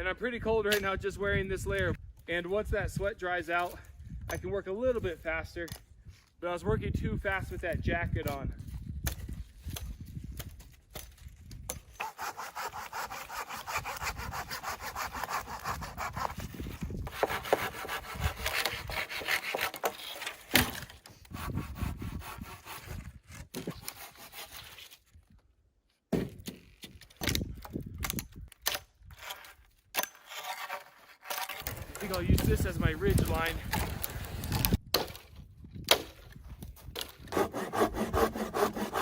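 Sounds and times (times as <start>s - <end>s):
short rasps and knocks: 9.0s - 25.0s
hand saw cutting wood: 11.9s - 25.0s, 29.3s - 34.8s, 37.0s - 39.0s.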